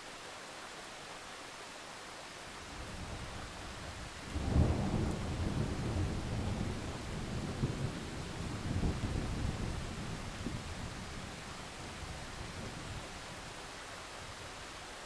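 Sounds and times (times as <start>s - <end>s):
steady rain: 0.0s - 15.0s
thunder rumbling: 3.8s - 11.3s.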